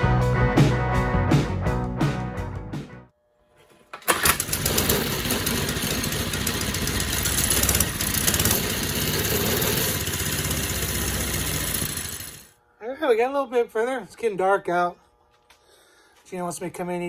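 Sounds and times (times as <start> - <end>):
small engine running: 3.9 - 12.6.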